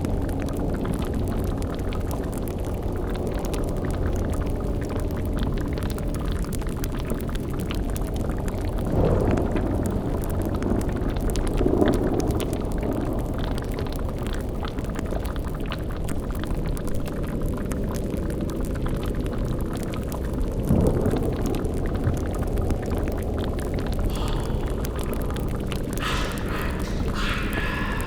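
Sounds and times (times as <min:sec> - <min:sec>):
bubbling crackling boil: 0:00.0 - 0:28.0
steady low drone: 0:23.8 - 0:28.0.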